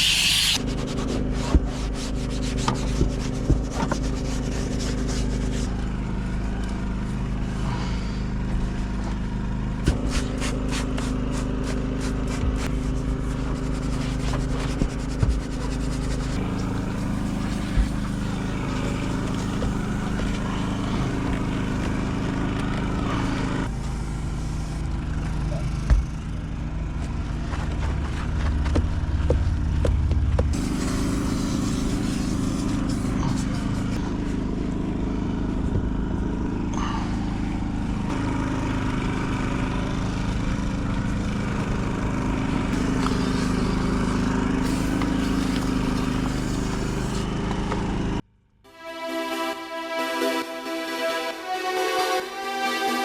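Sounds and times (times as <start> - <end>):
scrubbing or scraping: 0.0 - 5.8, 9.8 - 23.8
machine hum: 0.0 - 48.2.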